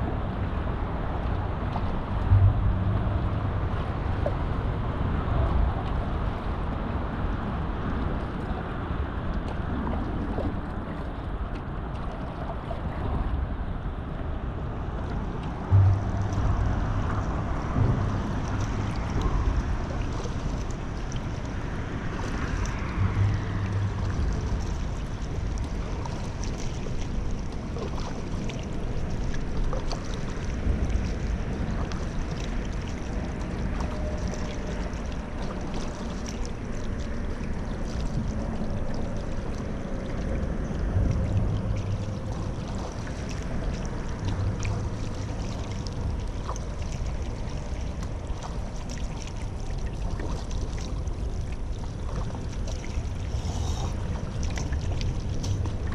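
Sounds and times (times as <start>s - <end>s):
low rumble: 0.0s - 55.9s
paddle splashing in water: 15.1s - 55.9s.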